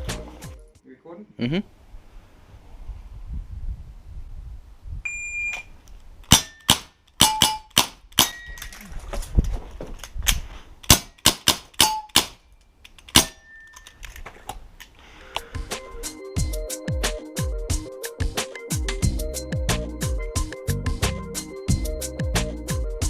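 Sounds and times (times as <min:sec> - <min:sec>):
electronic timer beep: 0:05.1 - 0:05.7
airsoft gun shots: 0:06.3 - 0:08.4, 0:10.8 - 0:12.4, 0:13.1 - 0:13.4.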